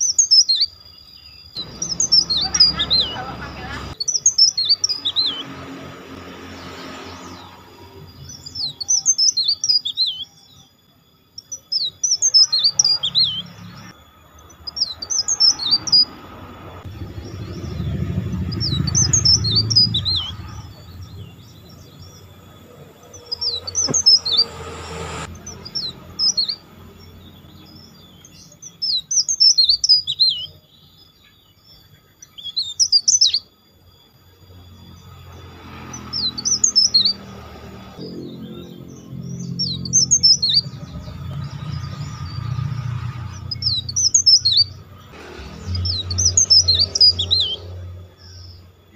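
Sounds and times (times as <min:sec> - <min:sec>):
low rumble: 0:01.6 - 0:04.0, 0:15.6 - 0:26.1, 0:38.0 - 0:48.8.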